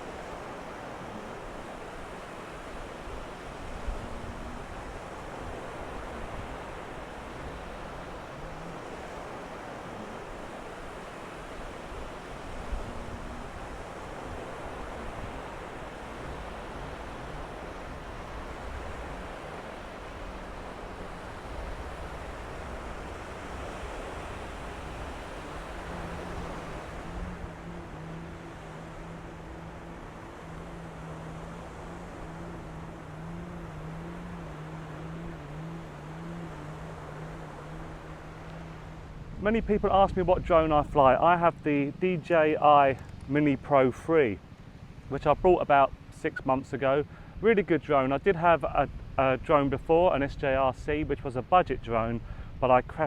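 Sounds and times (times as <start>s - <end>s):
wind on microphone: 0.0s - 42.1s
surf washing onto beach: 0.0s - 53.0s.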